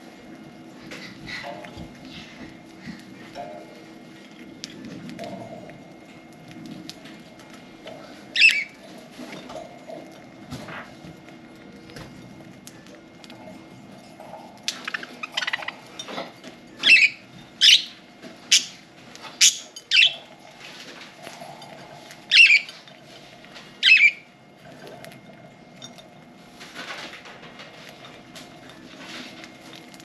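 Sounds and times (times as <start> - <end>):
budgerigars chirping: 16.8 - 17.9, 22.3 - 22.7, 23.8 - 24.2.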